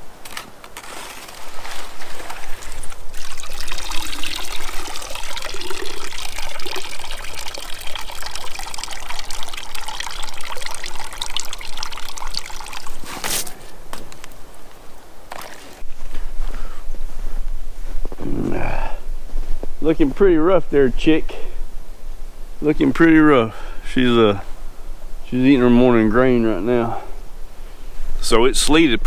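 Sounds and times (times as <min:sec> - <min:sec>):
water pouring into a trough: 0:02.0 - 0:13.3, 0:15.3 - 0:15.8.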